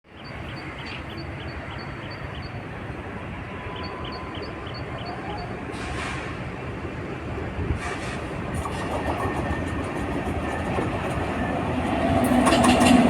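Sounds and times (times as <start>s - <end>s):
train rumbling: 0.2s - 13.0s
short hiss: 5.7s - 6.4s.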